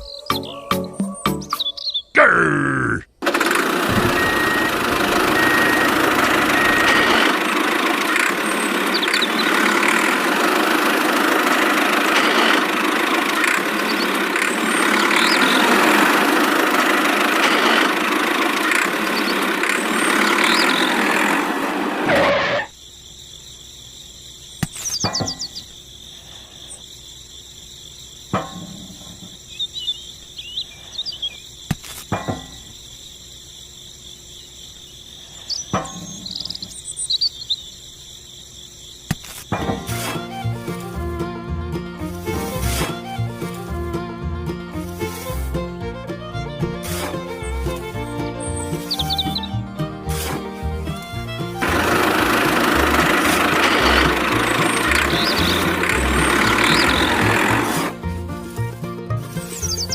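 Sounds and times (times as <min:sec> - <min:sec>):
insects chirping: 0:00.0 - 0:59.9
small motor whirring: 0:03.2 - 0:22.7, 0:51.0 - 0:58.0.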